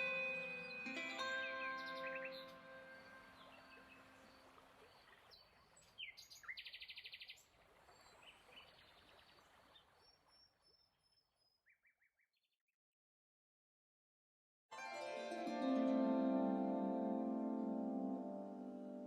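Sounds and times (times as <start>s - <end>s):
bird trill: 0.0s - 4.5s
small songbirds chirping: 0.0s - 12.6s.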